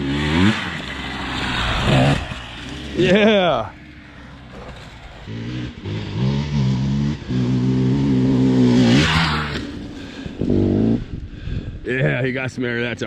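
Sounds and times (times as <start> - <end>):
dirt bike engine revving: 0.0 - 11.3
rush of noise: 0.5 - 6.2.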